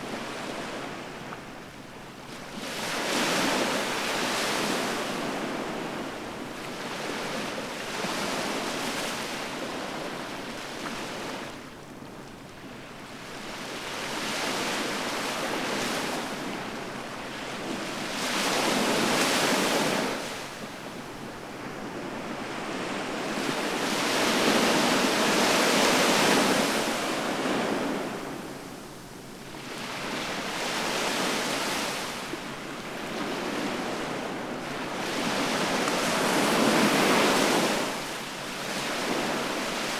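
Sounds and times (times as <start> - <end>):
ocean waves breaking on shore: 29.7 - 39.9.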